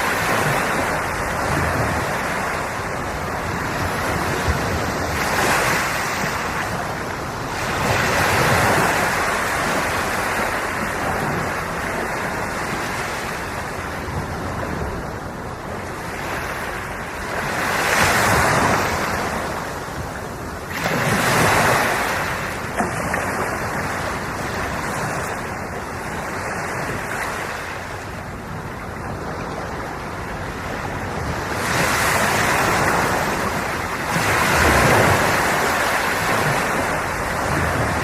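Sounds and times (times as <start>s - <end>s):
sea waves breaking on shore: 0.0s - 38.0s
wind buffeting microphone: 0.0s - 38.0s.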